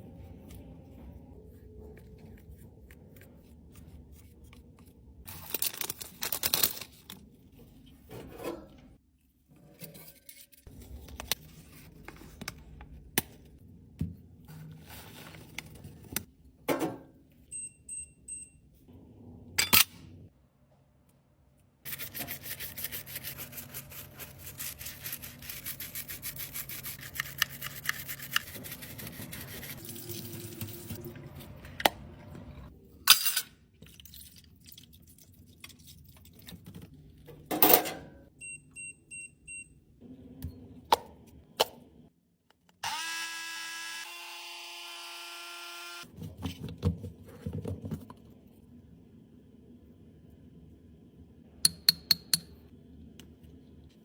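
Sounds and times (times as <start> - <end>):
rubbing and scraping: 21.9 - 31.0.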